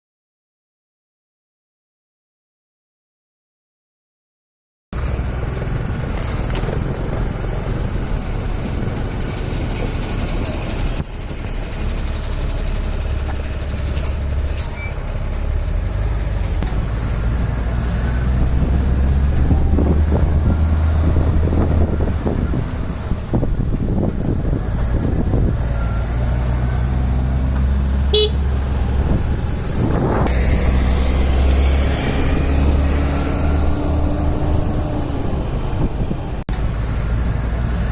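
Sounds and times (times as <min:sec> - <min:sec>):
lorry engine rumble: 0:05.0 - 0:37.9
road noise: 0:05.0 - 0:37.9
vehicle horn honking: 0:28.1 - 0:28.5.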